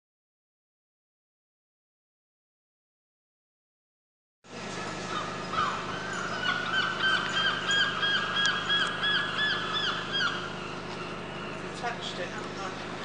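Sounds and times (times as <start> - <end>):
low steady hum: 4.5 - 13.0.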